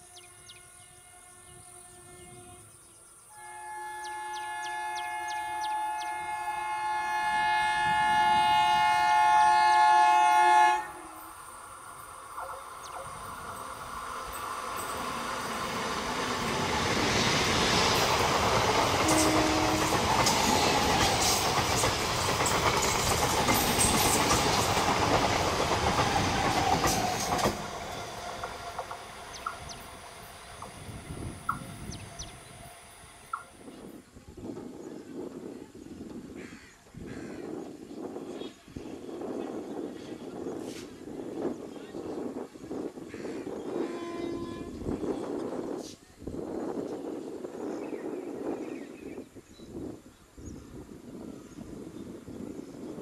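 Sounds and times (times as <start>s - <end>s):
train horn: 0.0s - 11.4s, 18.9s - 21.3s, 43.6s - 45.1s
train passing with rush: 0.0s - 53.0s.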